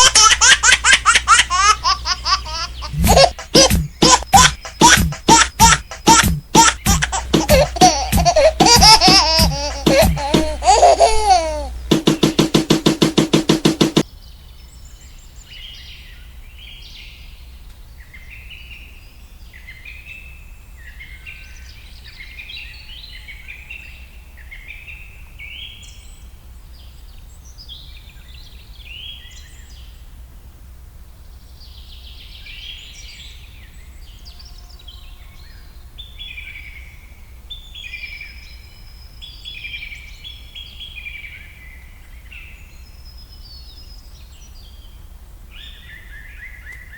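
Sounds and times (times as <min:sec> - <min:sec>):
small birds chirping: 0:00.0 - 0:12.4
loud rapid pulsing: 0:02.8 - 0:14.0.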